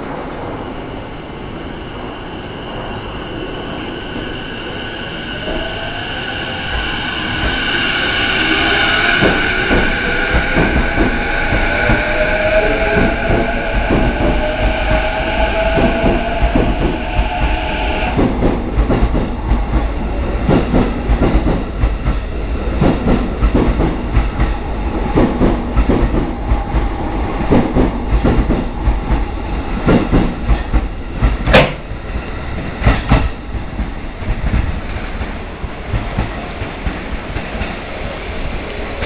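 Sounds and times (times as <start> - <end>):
train rumble: 0.0 - 39.0
train wheels knocking over rail joints: 9.2 - 31.9.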